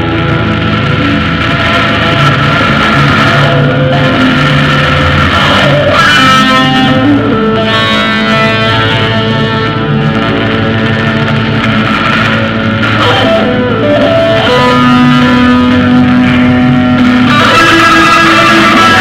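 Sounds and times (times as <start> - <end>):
bass line: 0.0 - 19.0
electric guitar sustained notes: 0.0 - 19.0.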